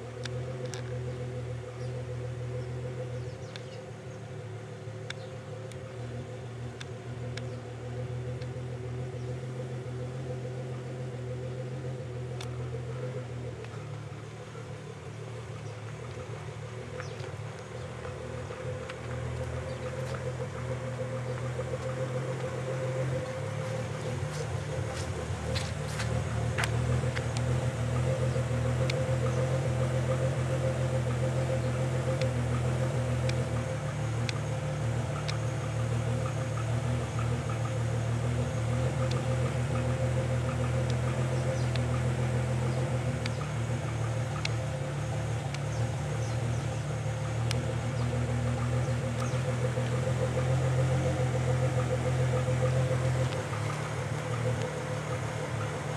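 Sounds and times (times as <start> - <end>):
car engine idling: 0.0 - 55.9
light clicks: 3.4 - 3.8, 5.0 - 5.9, 35.1 - 35.6.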